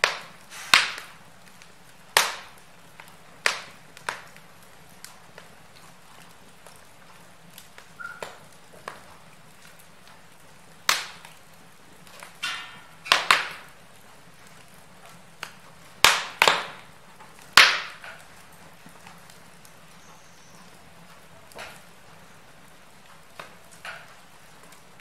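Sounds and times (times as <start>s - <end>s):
fire crackling and popping: 0.0s - 25.0s
brief hiss: 0.5s - 0.8s.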